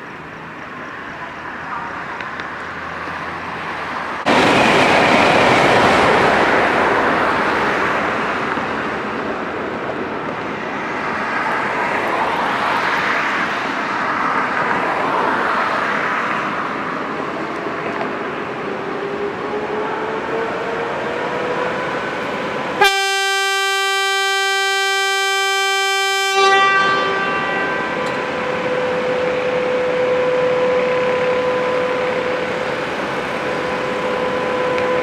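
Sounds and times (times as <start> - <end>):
passing train wheel and rail noise: 0.0 - 35.0.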